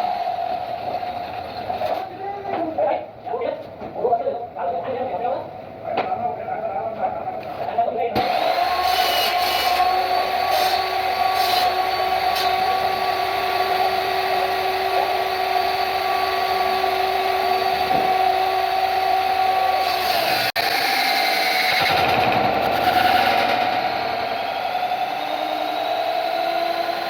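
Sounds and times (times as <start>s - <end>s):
woodworking power tool whining: 0.0s - 2.2s, 8.2s - 27.0s.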